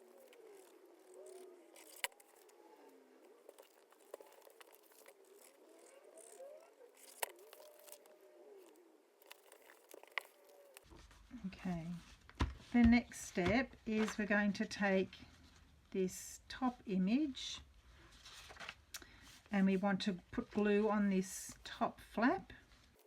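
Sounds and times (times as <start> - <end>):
paper crinkling: 0.0 - 11.2, 18.1 - 19.3.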